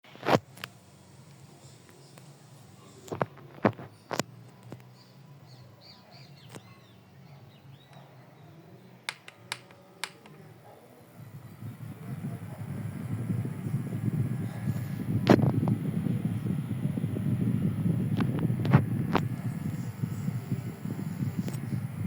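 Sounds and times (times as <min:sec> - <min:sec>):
faint bird chirps: 0:04.9 - 0:08.7
low steady hum: 0:08.9 - 0:22.0
sharp clicks and knocks: 0:09.1 - 0:10.4.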